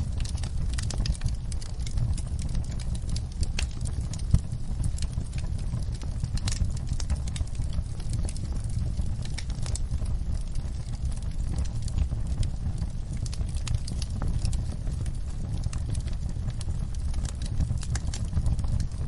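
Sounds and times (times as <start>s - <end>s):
fire low rumble: 0.0s - 19.0s
wood fire crackling and popping: 0.0s - 19.0s.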